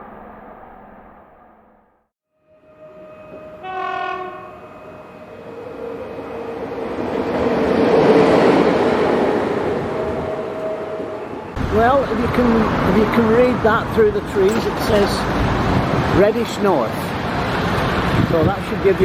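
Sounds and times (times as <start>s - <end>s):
train horn: 2.4s - 7.0s, 9.8s - 11.6s
train rumbling past: 2.5s - 19.0s.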